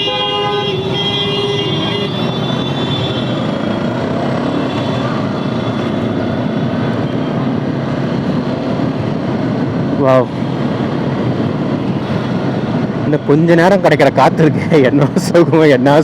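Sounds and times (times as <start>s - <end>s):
vehicle horn: 0.0s - 3.5s
road and wind noise: 0.0s - 16.0s.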